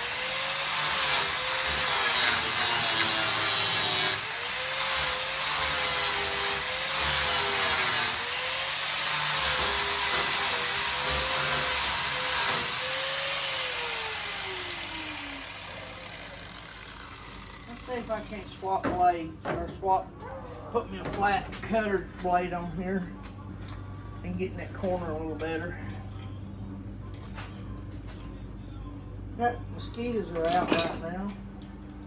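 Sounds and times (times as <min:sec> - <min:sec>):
angle grinder grinding metal: 0:00.0 - 0:18.9.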